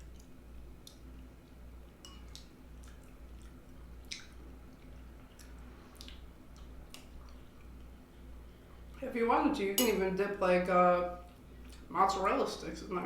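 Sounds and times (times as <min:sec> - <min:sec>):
person chewing wetly: 0:00.0 - 0:08.0
lip-smacks and clicks: 0:02.3 - 0:07.9.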